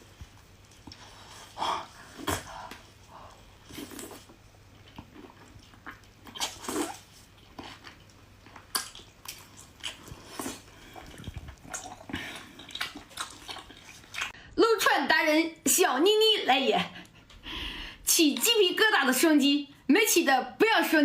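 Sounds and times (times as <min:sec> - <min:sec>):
person chewing and smacking: 0:03.6 - 0:14.4.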